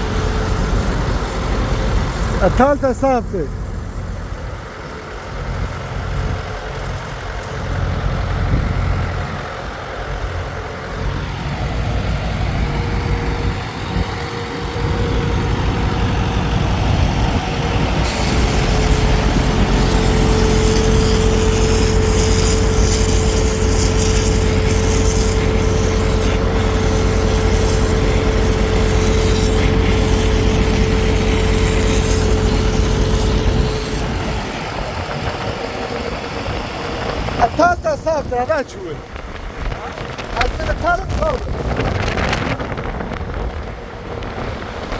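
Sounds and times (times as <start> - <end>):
heavy engine running: 0.0 - 44.9
whine with hiss: 10.8 - 43.3.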